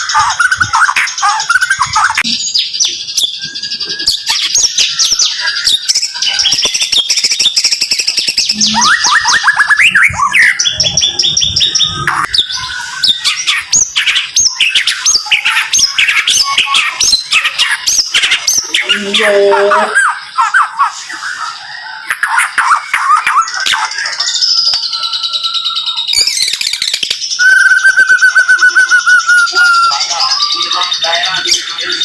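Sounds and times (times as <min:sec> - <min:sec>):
songbird singing rapid high notes: 0:00.0 - 0:24.8.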